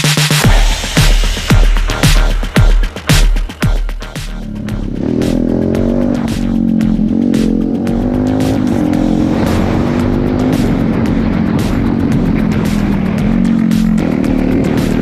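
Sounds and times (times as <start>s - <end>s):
background music with steady beat: 0.0s - 15.0s
dirt bike engine revving: 4.4s - 15.0s.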